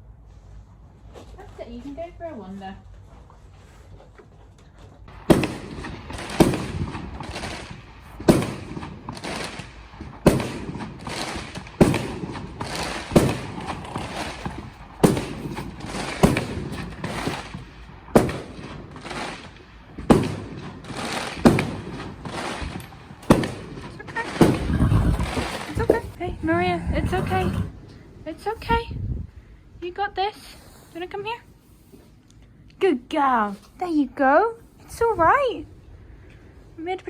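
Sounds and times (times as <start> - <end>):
fireworks bangs: 5.1 - 26.4.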